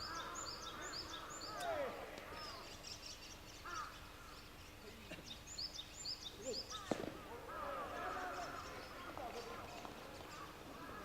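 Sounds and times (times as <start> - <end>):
birds chirping and calling: 0.0 - 11.0
sharp crack: 6.8 - 7.2.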